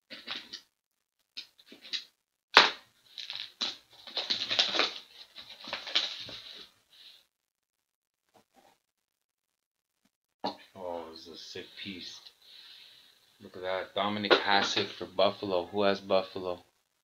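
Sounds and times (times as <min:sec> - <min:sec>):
packaging tearing: 0:02.6 - 0:06.5
shrink wrap crinkling: 0:02.6 - 0:06.7.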